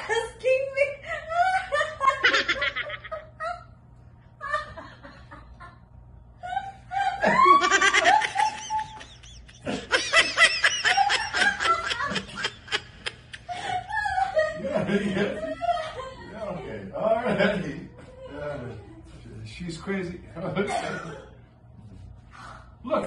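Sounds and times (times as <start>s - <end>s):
people laughing hard: 1.3s - 3.8s, 6.4s - 18.3s.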